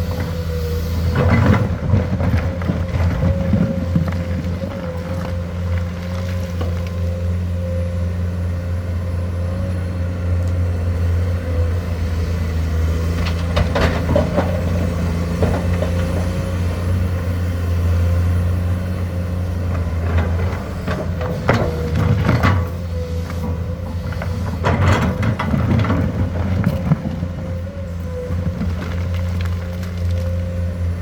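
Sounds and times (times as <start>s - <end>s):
excavator diesel engine running: 0.0s - 31.0s
metal clanks and knocks: 13.3s - 16.6s, 19.7s - 27.6s.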